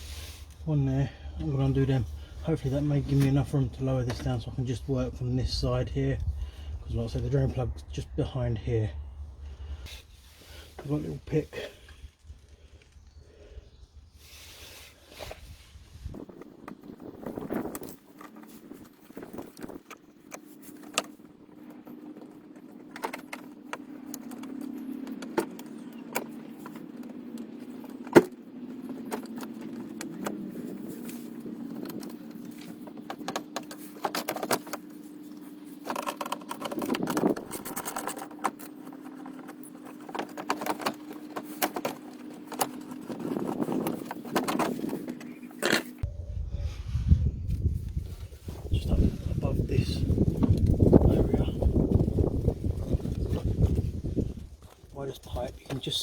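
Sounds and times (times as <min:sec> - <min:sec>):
steady low hum: 0:00.0 - 0:56.0
pick clicking and scraping plastic clips: 0:29.1 - 0:46.0.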